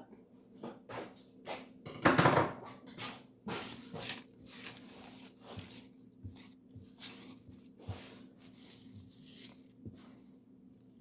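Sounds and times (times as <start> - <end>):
rustling: 3.5 - 11.0.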